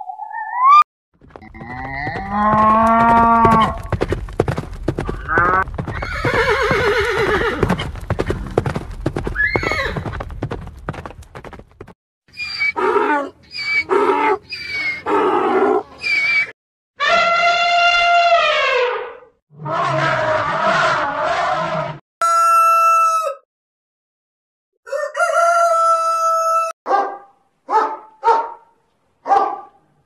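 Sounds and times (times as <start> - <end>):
clip-clop hoofbeats: 1.2 - 11.9
horse neighing: 5.2 - 7.8.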